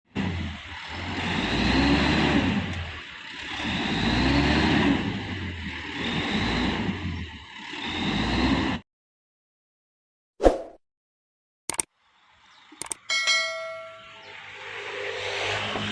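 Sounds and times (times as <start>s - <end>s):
truck engine revving hard: 0.1s - 8.8s, 14.3s - 15.9s.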